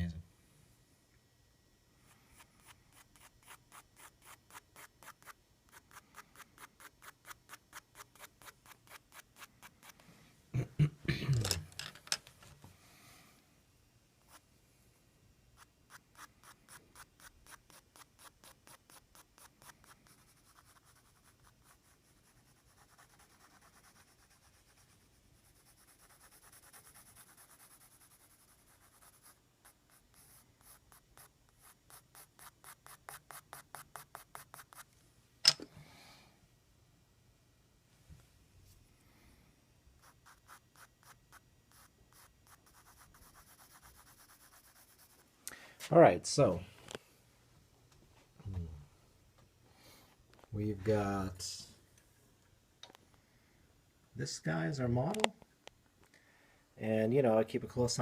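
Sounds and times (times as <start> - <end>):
pencil scratching on paper: 2.3 - 10.0, 15.6 - 34.9, 40.0 - 45.2.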